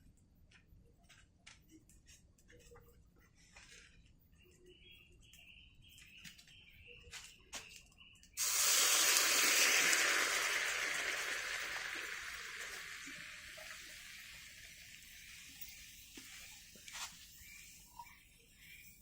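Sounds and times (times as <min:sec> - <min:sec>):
hot pan sizzling: 0:08.4 - 0:17.9.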